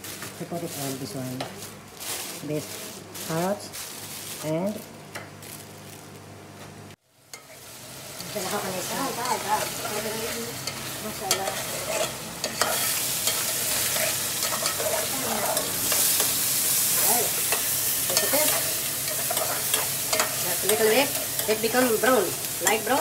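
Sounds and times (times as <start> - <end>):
chicken sizzling in a pot: 7.0 - 23.0
utensil scraping a metal pot: 10.6 - 16.3.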